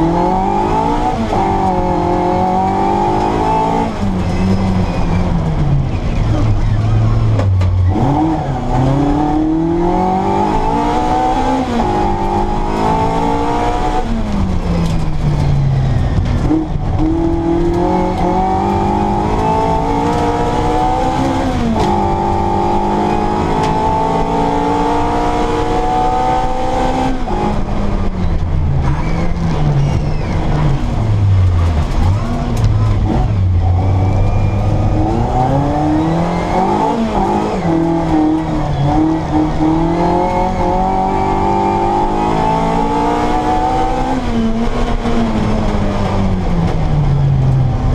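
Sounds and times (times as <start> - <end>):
car engine revving hard: 0.0 - 5.2, 7.9 - 15.0, 16.4 - 27.7, 30.9 - 47.9.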